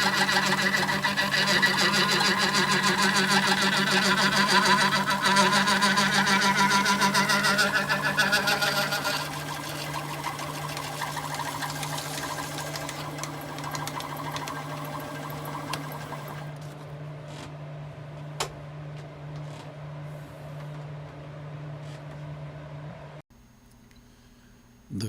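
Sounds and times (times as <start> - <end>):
fast rattling cut: 0.0 - 16.5
machine tool motor hum: 0.0 - 16.6.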